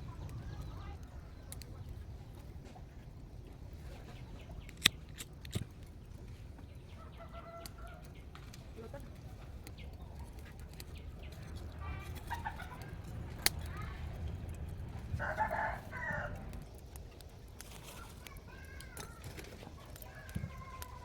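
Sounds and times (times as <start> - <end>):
chickens clucking: 10.1 - 13.3
rooster crowing: 15.2 - 16.6.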